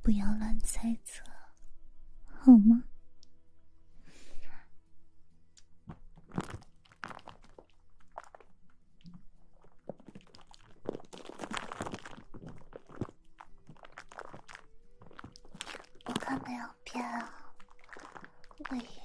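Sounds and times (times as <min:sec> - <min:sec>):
crisp rustling and scratching: 0:06.1 - 0:19.0.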